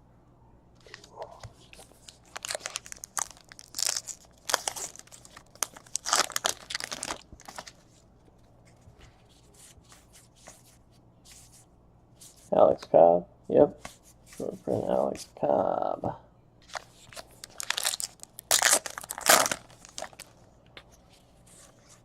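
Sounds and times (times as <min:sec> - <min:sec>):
foil wrapper tearing and crinkling: 0:02.1 - 0:07.7, 0:16.7 - 0:20.3.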